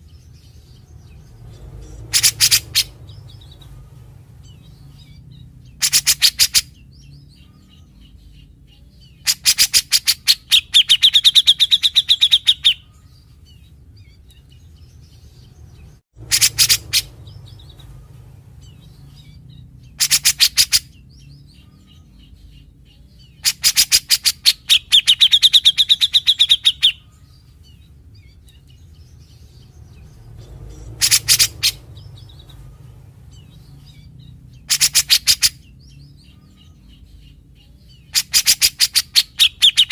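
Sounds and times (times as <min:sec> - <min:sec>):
bird giving harsh rattling calls: 0:01.8 - 0:03.7, 0:05.8 - 0:06.7, 0:16.2 - 0:17.8, 0:19.9 - 0:20.9, 0:23.4 - 0:27.0, 0:30.7 - 0:32.7, 0:34.6 - 0:35.6, 0:38.1 - 0:39.9.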